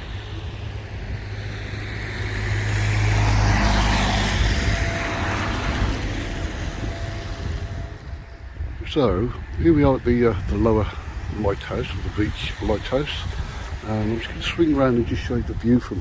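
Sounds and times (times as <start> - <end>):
vehicle passing close by: 0.0 - 8.6.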